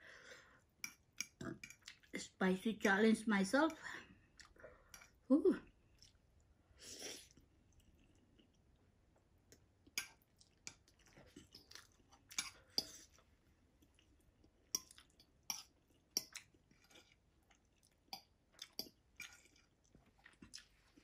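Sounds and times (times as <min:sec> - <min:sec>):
person chewing noodles: 0:04.2 - 0:05.2, 0:05.8 - 0:21.0.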